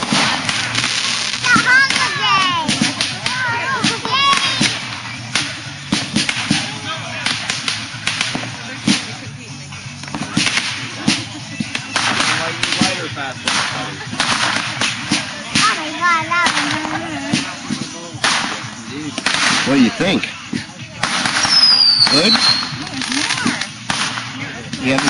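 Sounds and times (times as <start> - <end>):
fireworks cracking and banging: 0.0 - 25.0.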